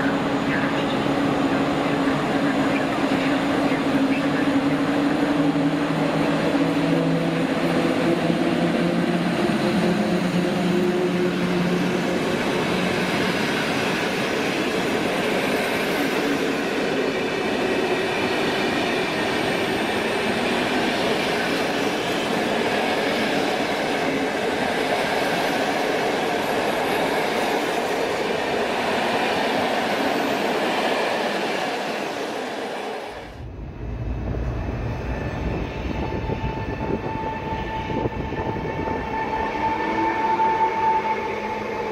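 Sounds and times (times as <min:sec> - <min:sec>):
train rumbling on rails: 0:00.0 - 0:41.9
falling hum tones: 0:33.3 - 0:37.2.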